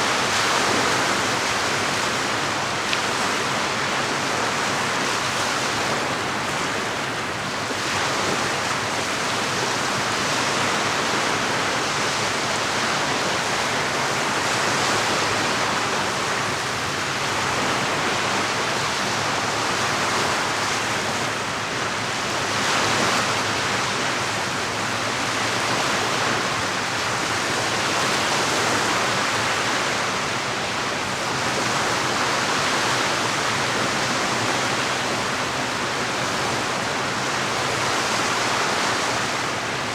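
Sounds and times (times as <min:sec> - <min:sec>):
lake water washing against shore: 0:00.0 - 0:39.9.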